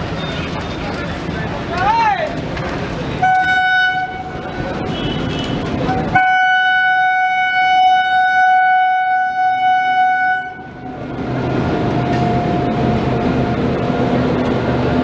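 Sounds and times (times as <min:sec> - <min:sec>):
passing train rumble: 0:00.0 - 0:15.0
train horn blast: 0:03.2 - 0:10.9.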